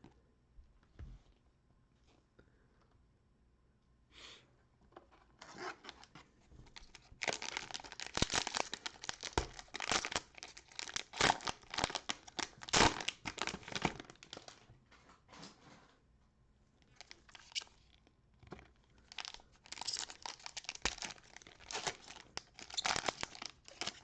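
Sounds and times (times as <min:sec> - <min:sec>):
cellophane wrapper tearing and crinkling: 0:06.8 - 0:14.6, 0:16.9 - 0:17.8, 0:19.0 - 0:24.0.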